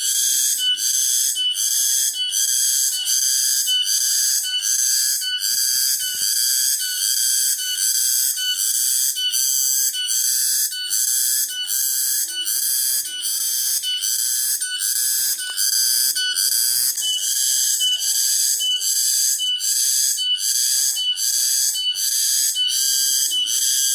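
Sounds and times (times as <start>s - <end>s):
cicadas pulsing drone: 0.0s - 23.9s.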